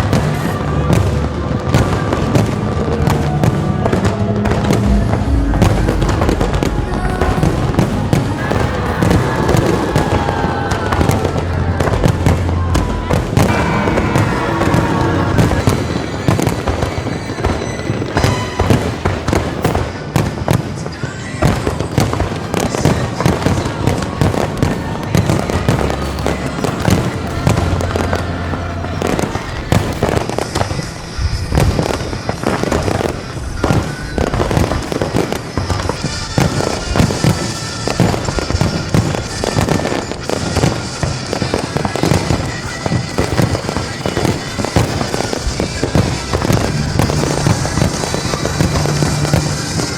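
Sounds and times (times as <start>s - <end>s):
fireworks bangs and crackling: 0.0s - 49.9s
music: 0.0s - 49.9s
voices: 0.0s - 49.9s.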